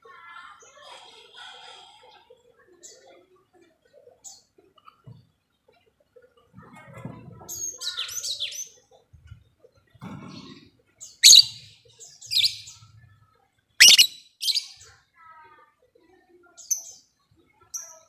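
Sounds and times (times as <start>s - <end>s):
bird chirping shrilly: 11.2s - 11.6s, 13.8s - 14.7s.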